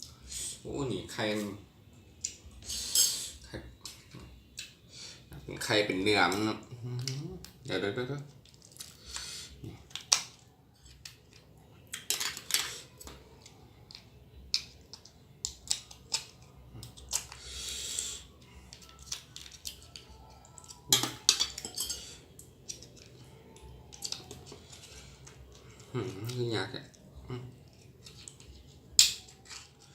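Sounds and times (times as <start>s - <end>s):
crab shell cracking and crunching: 8.3s - 29.9s.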